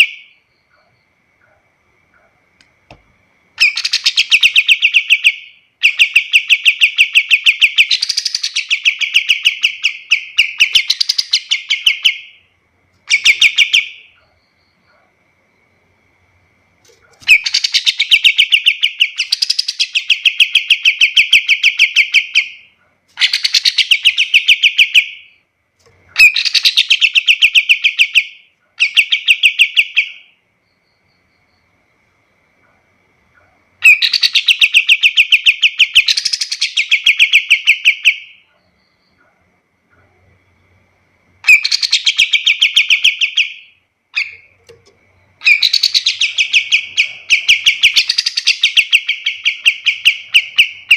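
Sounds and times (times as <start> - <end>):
songbird chattering: 3.6 - 12.4, 13.0 - 14.5, 17.0 - 25.4, 26.1 - 30.3, 41.4 - 50.9.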